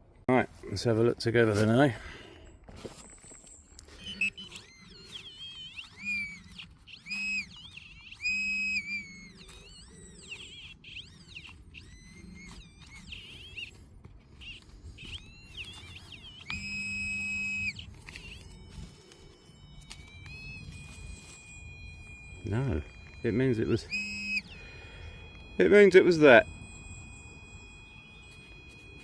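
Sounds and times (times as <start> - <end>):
metal detector target tones: 2.8 - 29.0.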